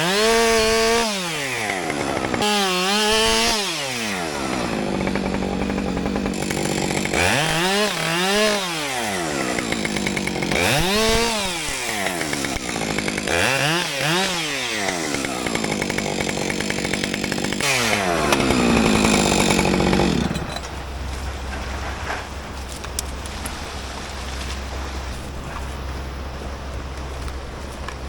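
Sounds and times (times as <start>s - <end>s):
chainsaw revving: 0.0s - 20.6s.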